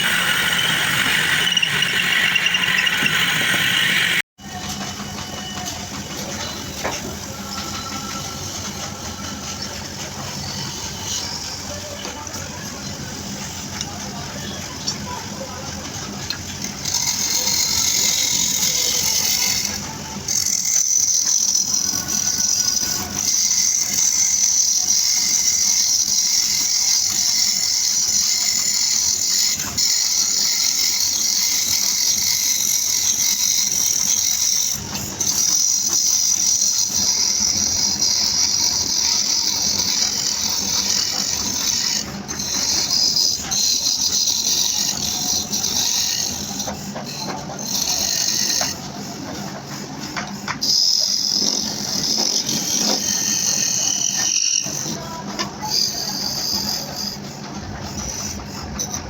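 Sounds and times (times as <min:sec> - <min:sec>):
lathe tool cutting wood: 0:00.0 - 0:04.3, 0:16.3 - 0:49.6, 0:50.2 - 0:59.0.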